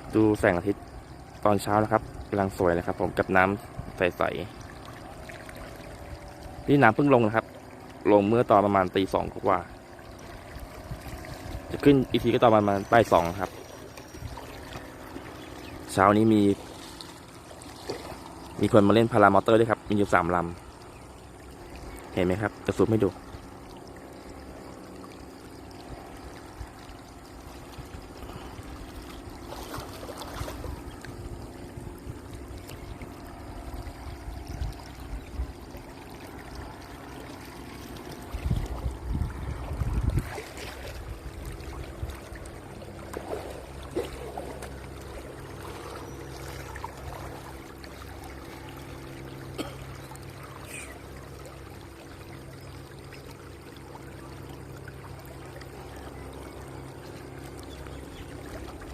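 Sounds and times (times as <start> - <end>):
distant paramotor engines droning: 0.0 - 58.9
flowing water: 0.0 - 58.9
wind buffeting microphone: 10.4 - 12.2, 38.2 - 42.3.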